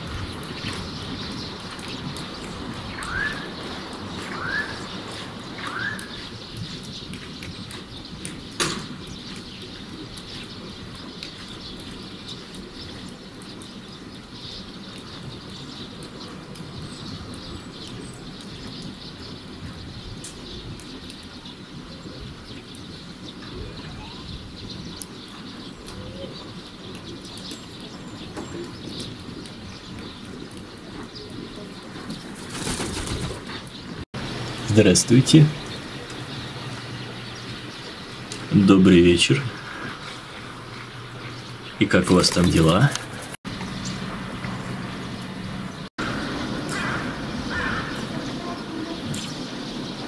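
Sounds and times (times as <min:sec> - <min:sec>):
outdoor background noise: 0:00.0 - 0:50.0
rising bird chirps: 0:02.8 - 0:07.1.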